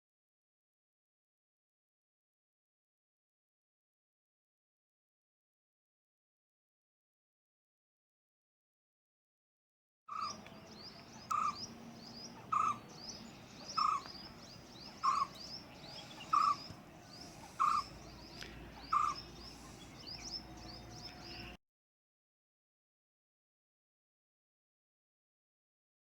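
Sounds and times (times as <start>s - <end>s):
bird repeating low call: 10.1s - 21.6s
small birds chirping: 10.1s - 21.6s.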